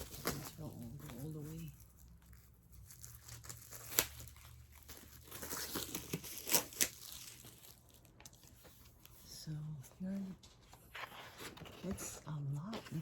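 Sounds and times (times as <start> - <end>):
plastic wrapping tearing and crinkling: 0.0 - 8.7.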